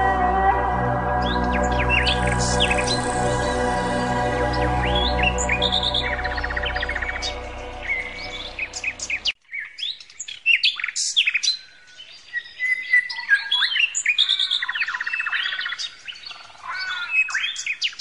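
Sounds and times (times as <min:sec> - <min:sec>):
music track: 0:00.0 - 0:09.4
small birds chirping and trilling: 0:01.2 - 0:18.0.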